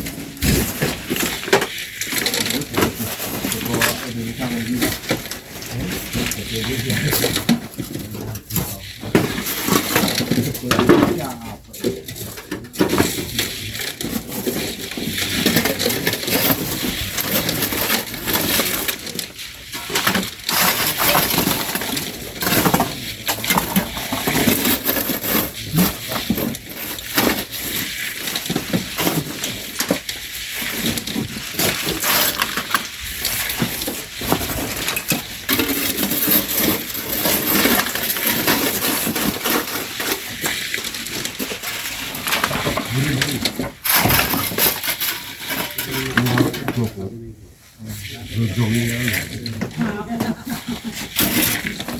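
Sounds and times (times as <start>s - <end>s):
shovel scraping sand and gravel: 12.9s - 47.1s, 47.9s - 51.9s.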